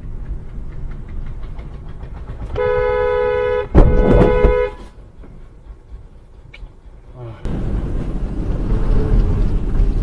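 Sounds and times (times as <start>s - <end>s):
road and engine rumble: 0.0s - 10.0s
car horn blaring: 2.6s - 5.0s.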